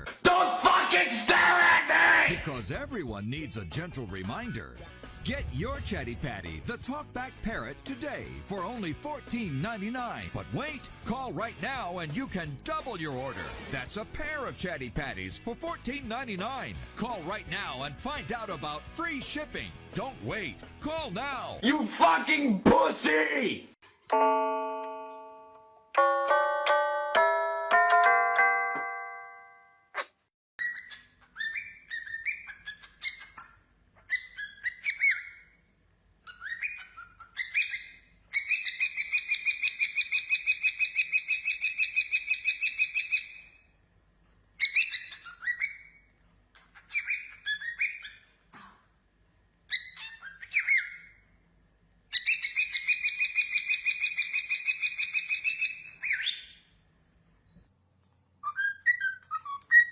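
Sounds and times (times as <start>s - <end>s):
bird chirping: 30.0s - 43.7s, 44.6s - 48.4s, 49.7s - 51.4s, 52.1s - 57.7s, 58.4s - 59.9s.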